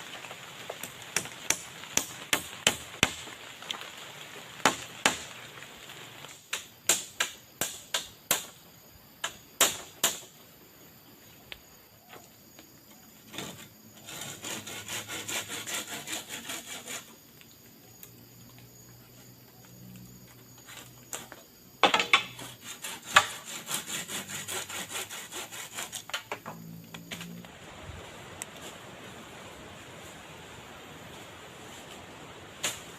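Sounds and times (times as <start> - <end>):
sharp blows on wood: 9.2 - 10.3, 21.8 - 26.3
fast sawing strokes: 14.0 - 17.2, 22.4 - 26.1.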